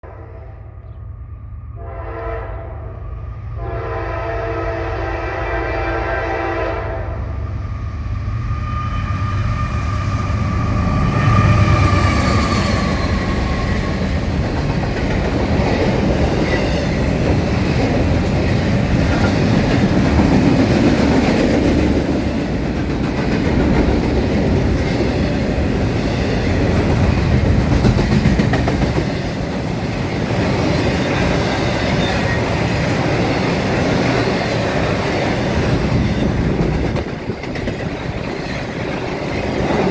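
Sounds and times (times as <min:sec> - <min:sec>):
diesel locomotives rumbling: 0:00.0 - 0:39.9
train wheels clacking on rails: 0:09.0 - 0:39.9.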